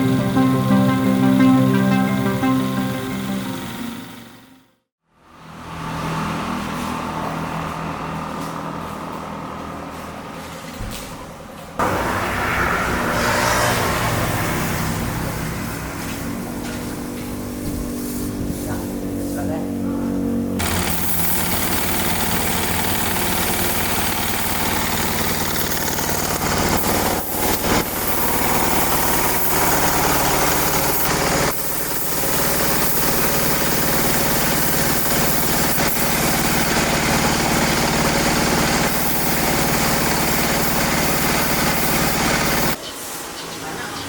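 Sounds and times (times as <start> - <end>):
truck engine running: 20.4 - 42.8.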